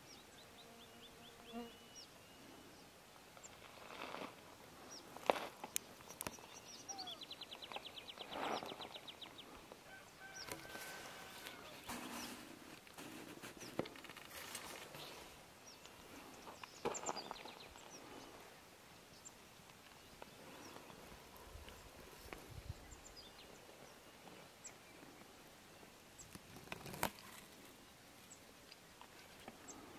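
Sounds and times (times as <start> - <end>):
birds chirping: 4.9 - 12.6, 13.6 - 18.4, 19.1 - 25.2.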